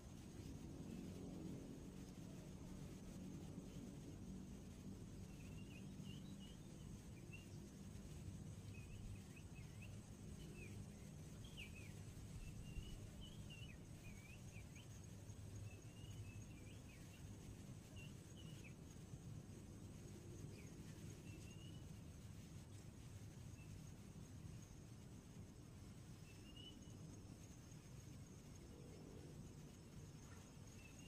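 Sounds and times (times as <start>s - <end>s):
low steady rumble: 0.0s - 31.0s
small birds twittering: 5.1s - 19.2s, 20.0s - 22.0s, 25.6s - 31.0s.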